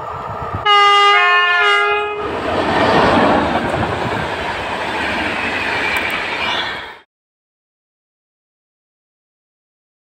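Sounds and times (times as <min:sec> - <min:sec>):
train passing: 0:00.0 - 0:07.1
train horn: 0:00.6 - 0:02.3.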